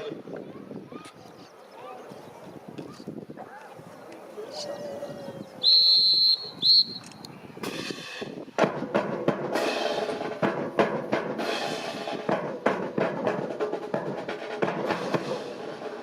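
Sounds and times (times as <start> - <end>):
shrill whistle blasts: 5.6 - 7.2
marching snare and bass drums: 7.6 - 16.0.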